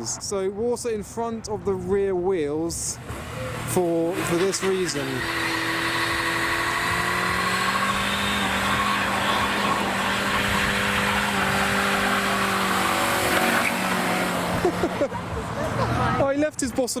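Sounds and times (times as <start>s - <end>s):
tyres hissing on wet tarmac: 3.0s - 16.0s
car engine at high revs: 3.0s - 16.3s.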